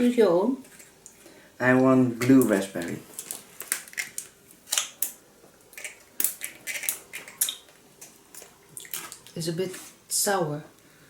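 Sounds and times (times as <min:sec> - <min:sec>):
candy wrapper clicks and crackles: 0:02.8 - 0:07.6
candy being eaten: 0:03.2 - 0:07.6.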